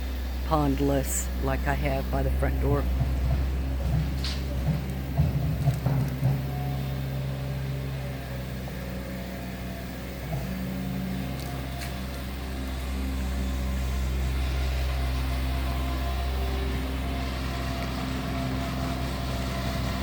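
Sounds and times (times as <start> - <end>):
motor engine humming: 0.0 - 20.0.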